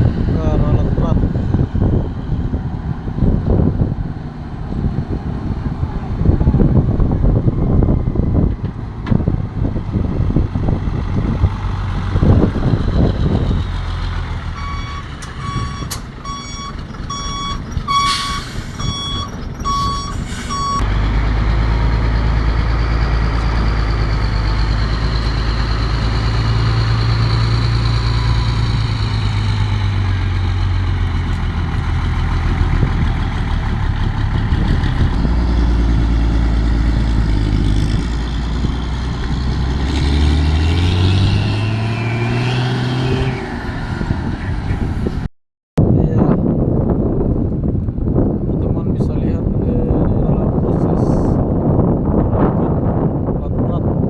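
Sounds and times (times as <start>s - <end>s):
heavy engine droning: 0.0s - 45.3s
vehicle reversing alarm beeping: 14.5s - 20.8s.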